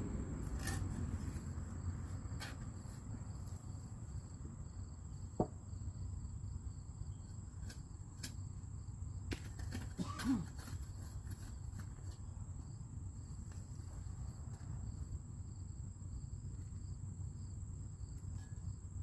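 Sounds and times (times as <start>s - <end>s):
low background rumble: 0.0s - 7.3s
high insect trill: 0.0s - 19.0s.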